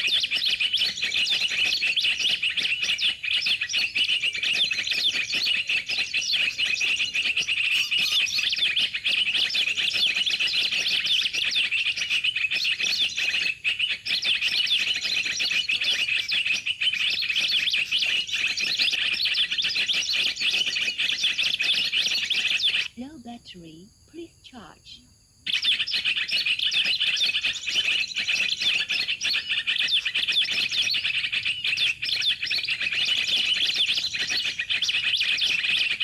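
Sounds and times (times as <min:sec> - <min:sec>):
bird call through speaker: 0:06.8 - 0:08.8.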